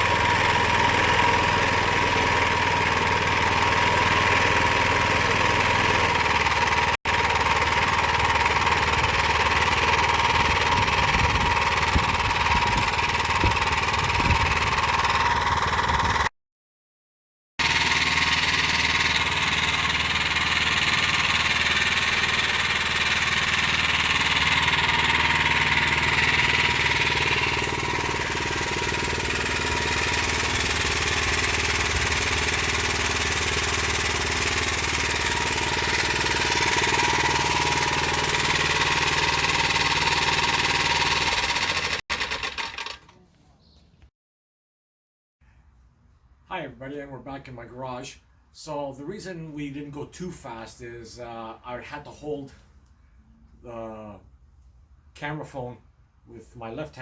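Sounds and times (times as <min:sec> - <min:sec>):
mini bike engine running: 0:00.0 - 0:16.3, 0:17.6 - 0:43.2.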